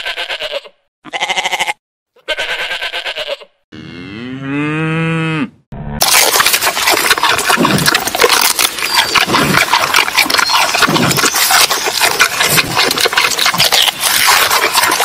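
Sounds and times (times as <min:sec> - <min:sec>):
panda crunching bamboo: 0:06.0 - 0:15.0.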